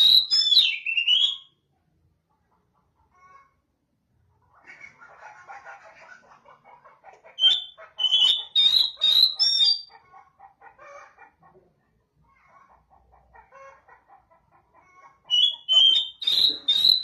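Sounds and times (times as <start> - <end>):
bird chattering: 0.0 - 1.4, 4.6 - 10.0, 13.4 - 17.0
bird whistling: 0.0 - 1.5, 7.4 - 9.9, 15.3 - 17.0.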